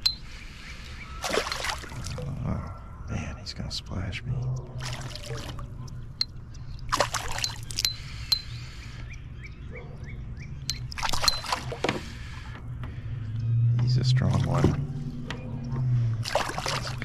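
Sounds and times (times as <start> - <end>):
fish thrashing and splashing: 1.2 - 2.3, 4.8 - 5.7, 6.8 - 8.0, 10.7 - 12.6, 16.2 - 17.0.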